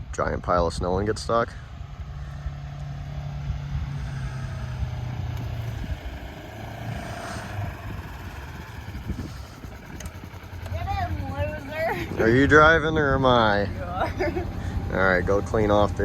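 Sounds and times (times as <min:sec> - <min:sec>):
vehicle engine droning: 0:01.5 - 0:16.0
faint wavering whine: 0:02.0 - 0:14.7.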